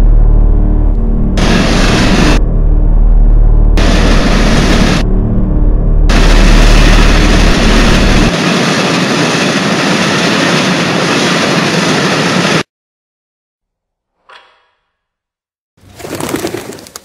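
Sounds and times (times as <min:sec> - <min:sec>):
train rushing along rails: 0:01.4 - 0:02.4, 0:03.8 - 0:05.0, 0:06.1 - 0:12.7.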